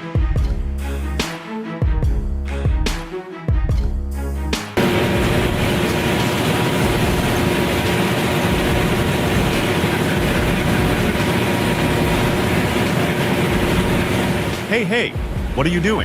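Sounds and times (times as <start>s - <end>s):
heavy vehicle engine and rolling: 4.8s - 14.7s.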